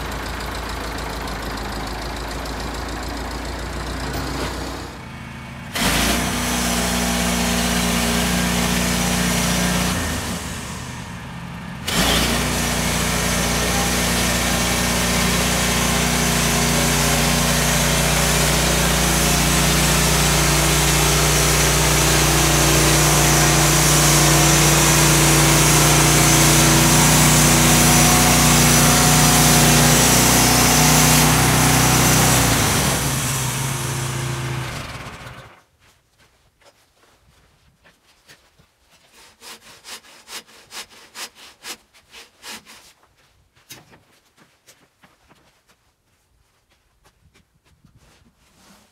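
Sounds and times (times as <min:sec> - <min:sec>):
sawmill engine drone: 0:00.0 - 0:35.6
saw blade cutting through log: 0:05.7 - 0:10.8, 0:11.9 - 0:35.0, 0:38.9 - 0:43.1.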